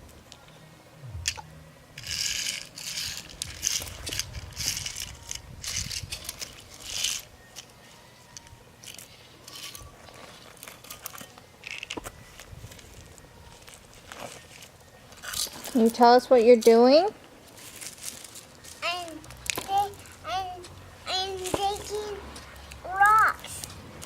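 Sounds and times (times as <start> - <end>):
small rocks scraping and rattling: 17.5 - 20.0.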